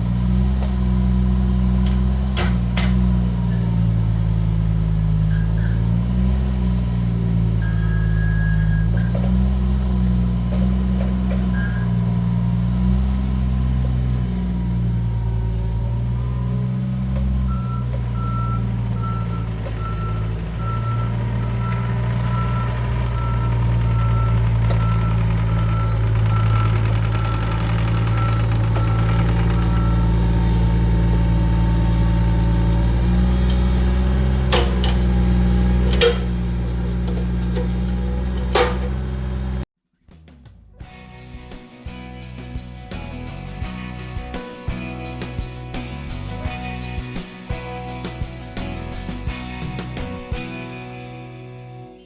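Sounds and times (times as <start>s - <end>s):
diesel engine running: 0.0s - 39.7s, 41.3s - 51.6s
travel alarm beeping: 7.6s - 9.2s, 17.5s - 30.4s.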